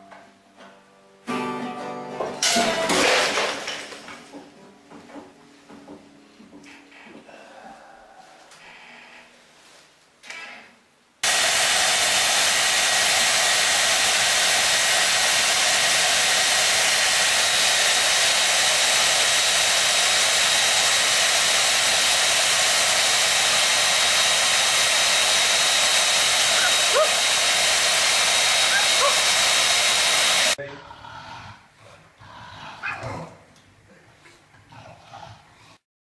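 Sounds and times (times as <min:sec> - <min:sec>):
electric fan rushing: 0:11.2 - 0:30.6.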